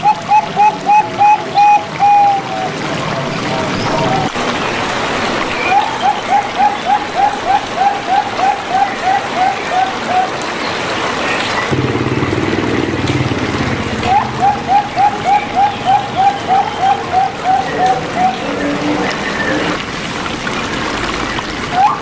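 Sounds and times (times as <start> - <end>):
dove calls: 0.0 - 2.8, 5.5 - 10.7, 13.1 - 19.8
running water trickling: 0.0 - 22.0.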